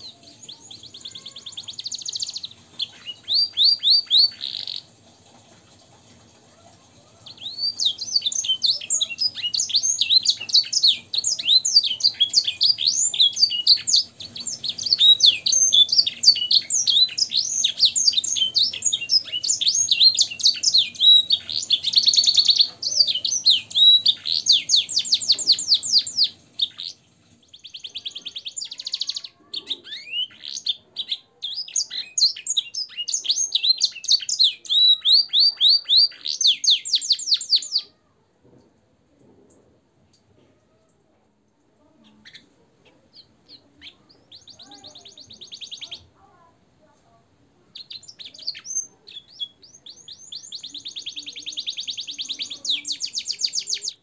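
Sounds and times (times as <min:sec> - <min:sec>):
canary singing trills: 0:00.0 - 0:05.0, 0:07.0 - 0:38.1, 0:41.8 - 0:46.6, 0:47.6 - 0:54.0.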